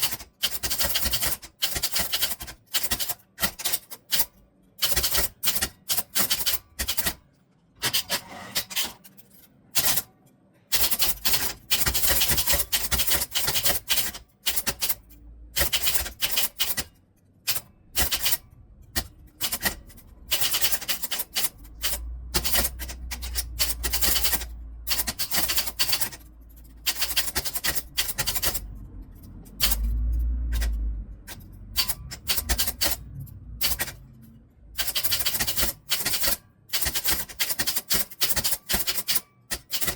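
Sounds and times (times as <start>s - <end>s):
typewriter key strikes: 0.0s - 7.2s, 7.8s - 10.1s, 10.7s - 34.2s, 34.8s - 39.9s
low rumble: 30.0s - 34.8s.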